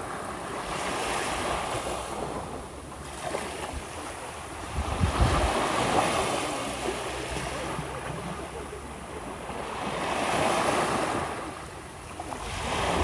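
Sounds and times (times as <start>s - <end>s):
small waves washing onto shore: 0.0s - 13.0s
wind buffeting microphone: 4.6s - 6.1s.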